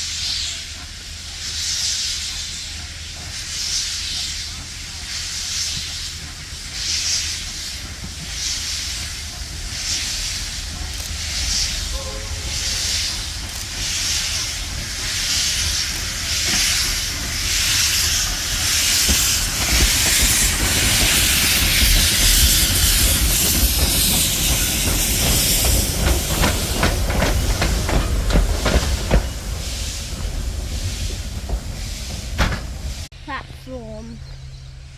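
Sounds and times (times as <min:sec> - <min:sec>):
steam hissing: 0:00.0 - 0:34.0
steam locomotive chuffing: 0:00.0 - 0:34.9
wheels clicking over rail joints: 0:13.2 - 0:33.1.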